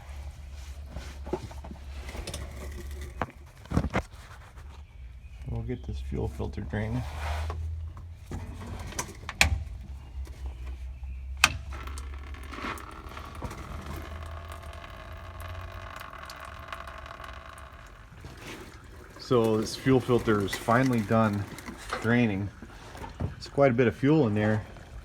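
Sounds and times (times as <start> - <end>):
fuel trickling into pan: 10.1 - 23.6.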